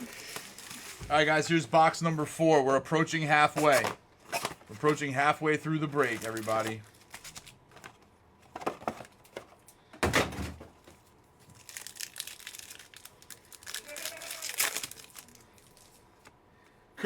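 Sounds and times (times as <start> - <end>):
plastic wrapping crinkling: 0.0 - 1.4, 5.8 - 8.0, 11.0 - 16.3
plastic wrapping ripping: 6.0 - 7.6, 11.4 - 16.0.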